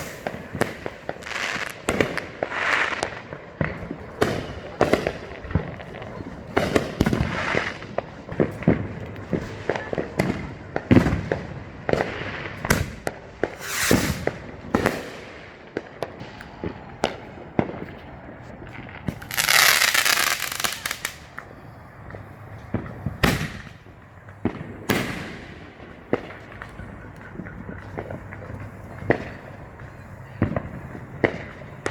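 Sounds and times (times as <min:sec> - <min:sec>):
loud hissing crackle: 0:00.0 - 0:10.5, 0:12.3 - 0:31.9
firework bangs and pops: 0:00.0 - 0:31.9.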